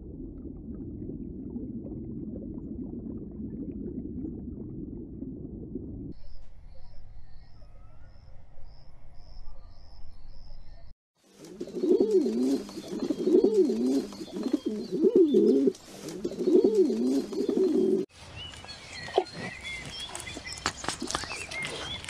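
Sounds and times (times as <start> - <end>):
pigeons cooing: 11.4 - 18.1.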